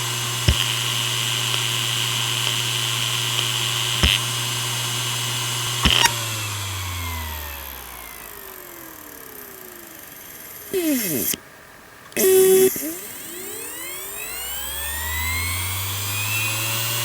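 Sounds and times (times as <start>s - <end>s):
hard drive spinning hum: 0.0s - 17.0s
hard drive clicks: 0.4s - 4.4s, 5.7s - 6.2s.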